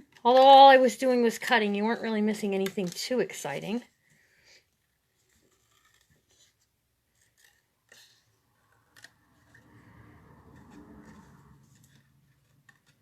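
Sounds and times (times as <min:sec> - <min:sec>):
scissors snipping paper: 0:05.3 - 0:09.2, 0:10.6 - 0:13.0.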